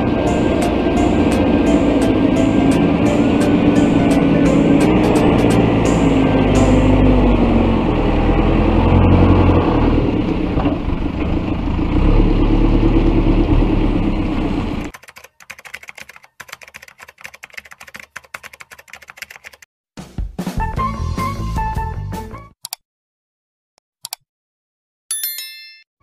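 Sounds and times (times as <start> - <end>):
diesel engine running: 0.0 - 14.9.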